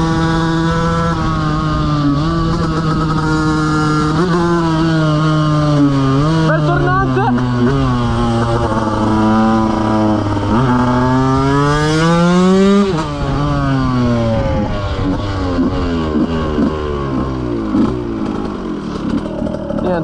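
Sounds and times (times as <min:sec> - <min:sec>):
motorcycle engine accelerating: 0:00.0 - 0:20.0
motorcycle rev blips: 0:00.0 - 0:20.0.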